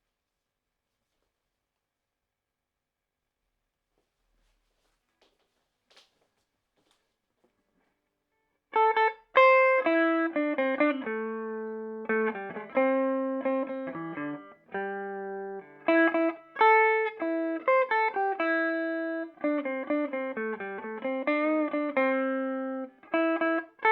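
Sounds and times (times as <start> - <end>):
electric guitar melodic line: 8.7 - 23.9.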